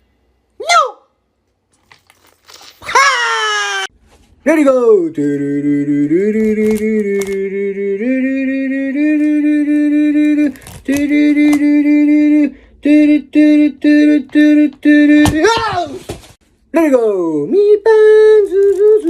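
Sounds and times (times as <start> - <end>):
person singing without words: 4.4 - 16.2, 16.9 - 19.0.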